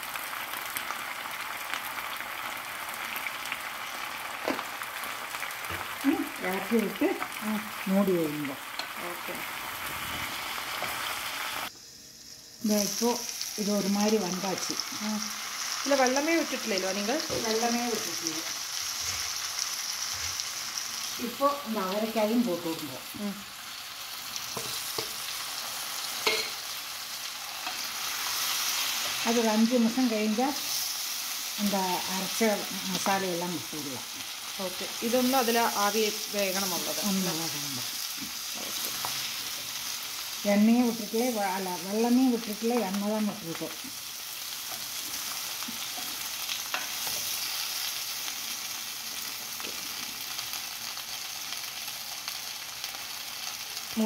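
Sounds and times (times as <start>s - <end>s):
beans sizzling in a pan: 0.0s - 54.0s
vegetables frying in oil: 0.0s - 54.0s
utensils knocking against pan: 26.2s - 26.6s.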